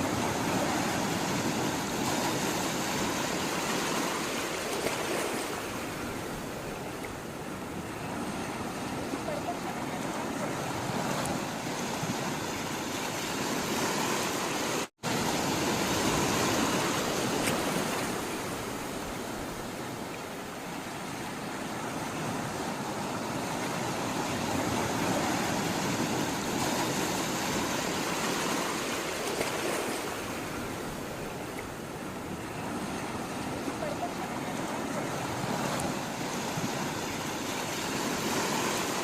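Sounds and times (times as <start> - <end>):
sea water rushing and washing: 0.0 - 39.0.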